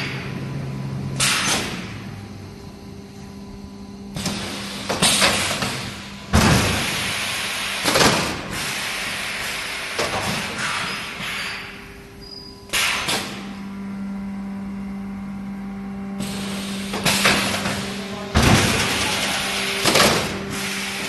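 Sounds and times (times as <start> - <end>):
electrical hum: 0.0 - 21.0
welding machine noise bursts: 4.1 - 11.7, 16.2 - 21.0.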